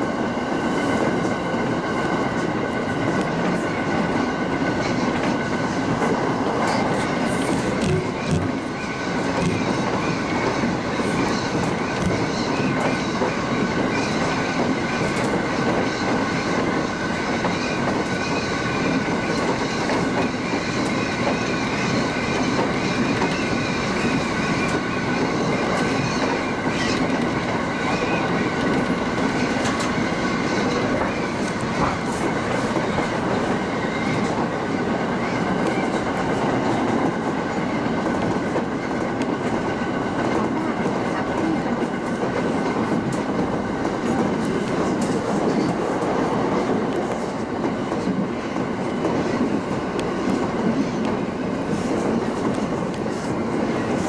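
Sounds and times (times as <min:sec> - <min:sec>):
train wheels clickety-clack: 0:00.0 - 0:54.0
train wheels rumbling on rail: 0:00.0 - 0:54.0.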